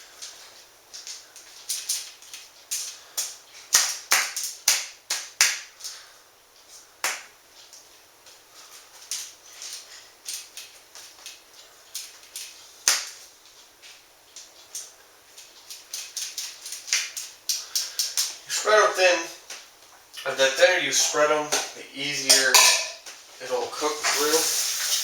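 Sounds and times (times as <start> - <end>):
utensil scraping baking sheet: 22.2 - 25.0.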